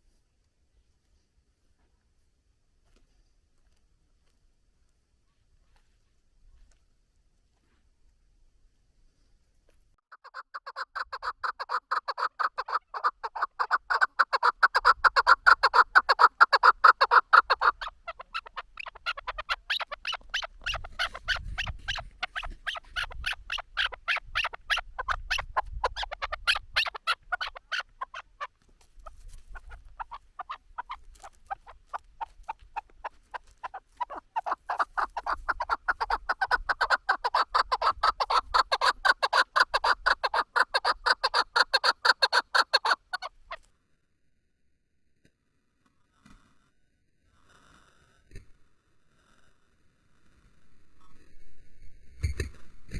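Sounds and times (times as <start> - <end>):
partridge clucking calls: 10.1 - 43.6.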